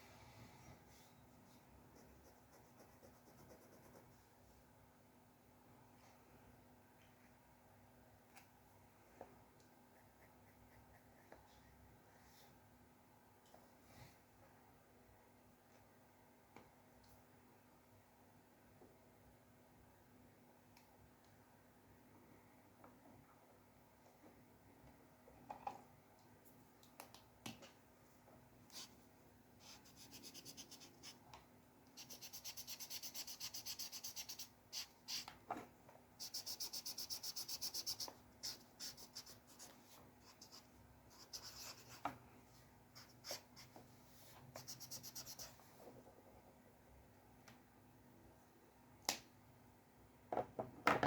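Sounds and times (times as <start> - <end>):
pencil scratching on paper: 1.9 - 4.1, 29.6 - 31.2, 32.0 - 35.3, 36.2 - 42.1
rapid back-and-forth scratching: 32.0 - 35.3.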